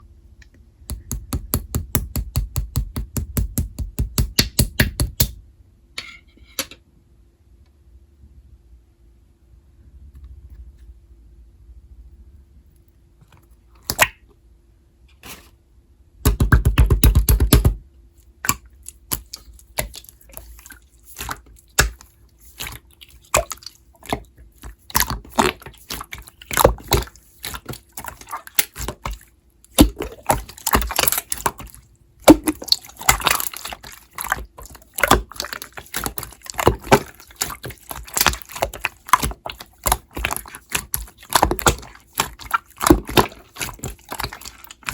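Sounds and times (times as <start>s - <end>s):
slime being squished by hand: 16.2s - 44.9s.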